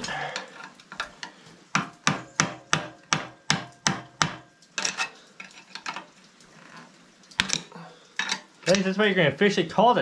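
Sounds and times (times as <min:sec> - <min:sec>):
hammer striking metal: 0:01.8 - 0:04.5.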